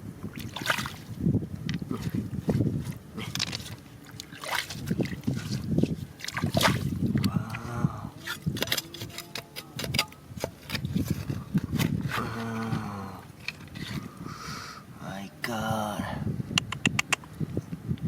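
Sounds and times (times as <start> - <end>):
water splashing and sloshing: 0.0 - 7.6, 8.2 - 14.3.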